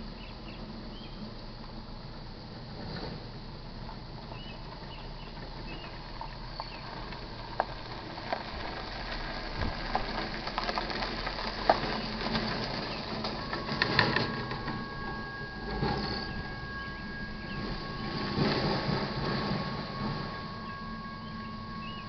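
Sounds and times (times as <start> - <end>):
faint bird chirps: 0.1 - 1.3, 4.3 - 6.9, 14.4 - 22.0
rails ticking and clicking: 5.4 - 22.0
approaching freight train: 11.5 - 22.0
high two-tone ringing: 12.9 - 22.0.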